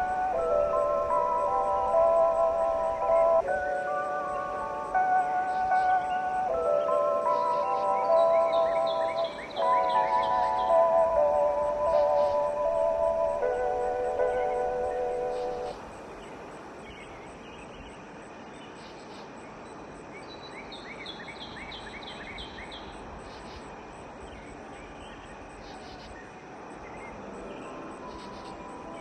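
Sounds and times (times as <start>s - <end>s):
soft musical tones: 0.0s - 16.7s, 27.0s - 29.0s
bird chirping: 0.0s - 18.0s, 18.6s - 29.0s
steady airy hiss: 0.0s - 21.3s, 23.0s - 29.0s.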